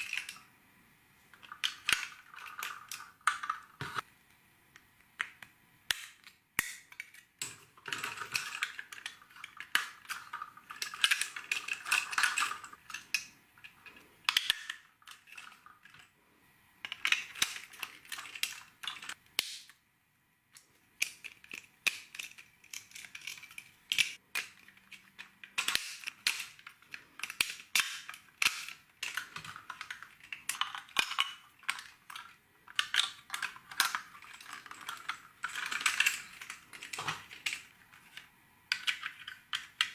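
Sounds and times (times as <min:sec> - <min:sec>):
plastic bricks clicking together: 0:00.0 - 0:00.5, 0:01.3 - 0:04.1, 0:04.8 - 0:16.1, 0:16.8 - 0:19.8, 0:20.6 - 0:39.9.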